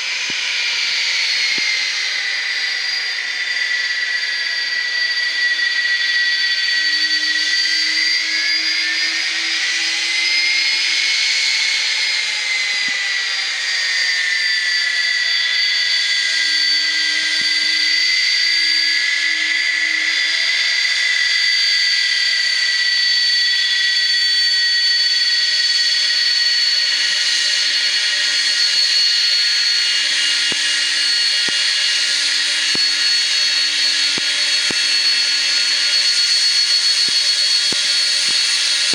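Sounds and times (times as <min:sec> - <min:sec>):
jet engines whining: 0:25.6 - 0:38.9.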